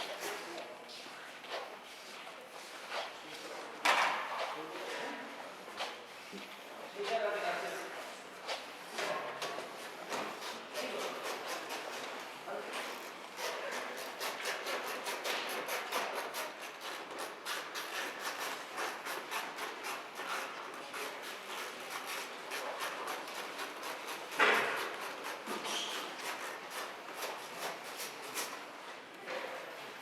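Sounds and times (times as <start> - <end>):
hand scraping strokes: 10.1 - 28.8.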